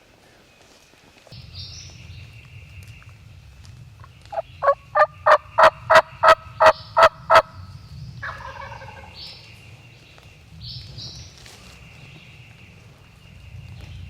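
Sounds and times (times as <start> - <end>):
low falling turkey call: 4.0 - 7.5, 8.2 - 9.2
turkey yelps: 4.3 - 7.5.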